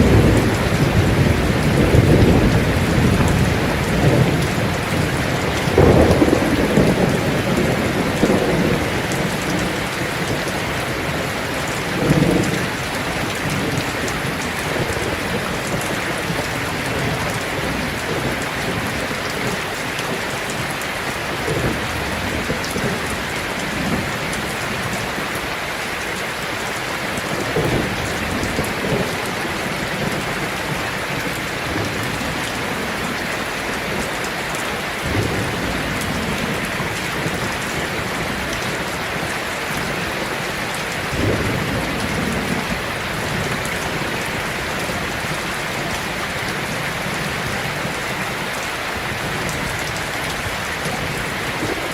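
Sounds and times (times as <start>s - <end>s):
thunder rolling: 0.0s - 19.3s, 35.0s - 48.6s
heavy rain on a tin roof: 0.0s - 51.9s.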